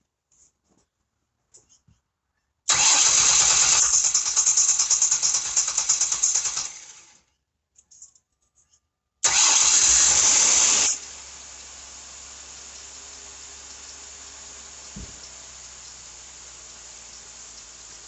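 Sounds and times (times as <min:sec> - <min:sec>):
car engine starting: 0:02.7 - 0:07.1, 0:09.2 - 0:18.0
car engine idling: 0:10.9 - 0:18.0.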